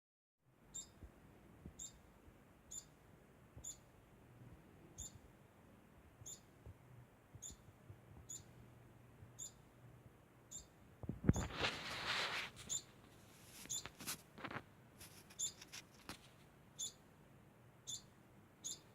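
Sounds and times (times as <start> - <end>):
rodent squeaking: 0.7 - 1.0, 1.8 - 2.1, 2.7 - 3.0, 3.6 - 3.9, 5.0 - 5.2, 6.2 - 6.5, 7.4 - 8.6, 9.4 - 9.7, 10.5 - 16.1, 16.8 - 17.0, 17.8 - 18.9.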